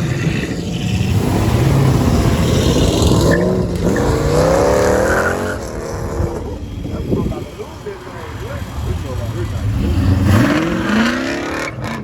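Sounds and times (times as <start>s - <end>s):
car engine revving hard: 0.0s - 6.6s, 8.9s - 12.0s.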